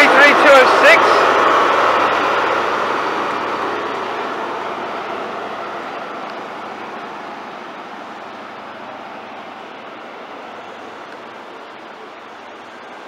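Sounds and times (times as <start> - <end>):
high-speed train running: 0.0 - 13.0.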